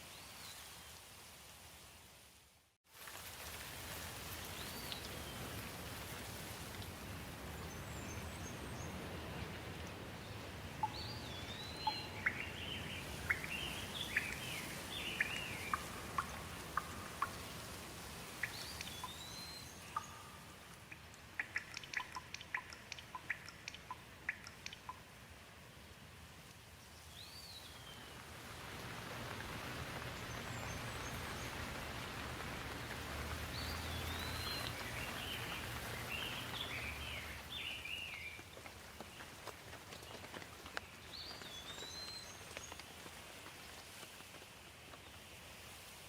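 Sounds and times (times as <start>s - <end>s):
steady rain: 0.0s - 46.0s
sharp ticks: 19.9s - 25.0s.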